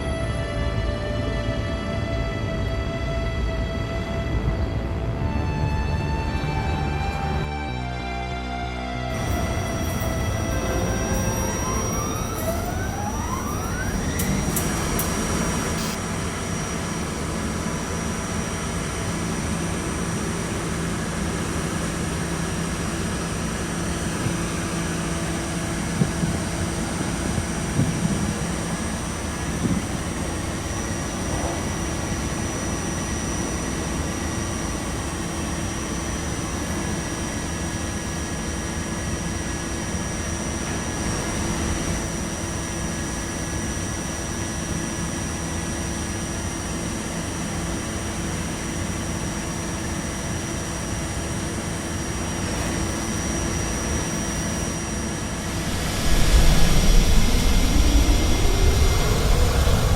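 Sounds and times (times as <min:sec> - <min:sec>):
subway car rumble and hum: 0:00.0 - 0:59.9.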